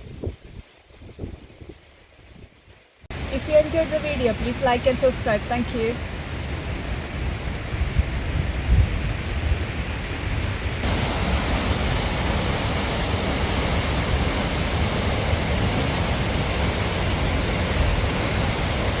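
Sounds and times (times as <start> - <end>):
waterfall rushing: 10.8 - 19.0.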